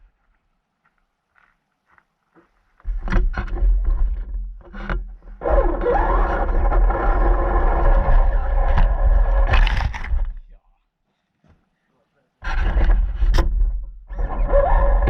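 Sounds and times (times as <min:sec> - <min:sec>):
radio-controlled car running: 0:05.4 - 0:10.2.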